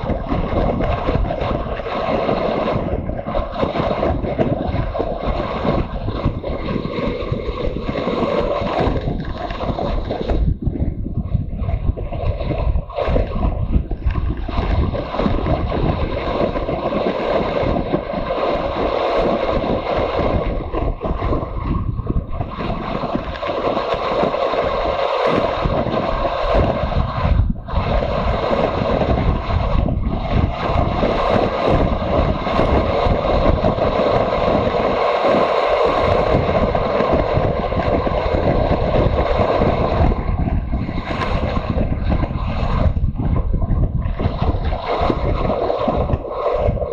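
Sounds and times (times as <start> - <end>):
wind rushing over microphone: 0.0 - 46.9.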